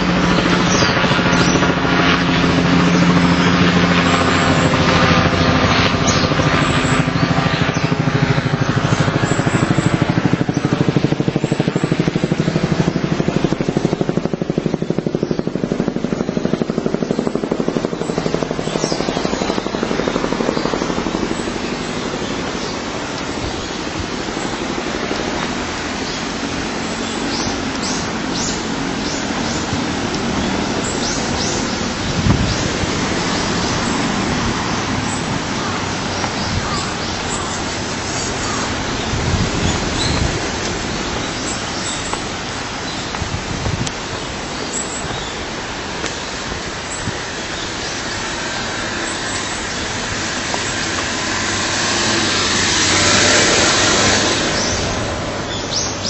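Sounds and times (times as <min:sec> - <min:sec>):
low droning hum: 0:00.0 - 0:56.0.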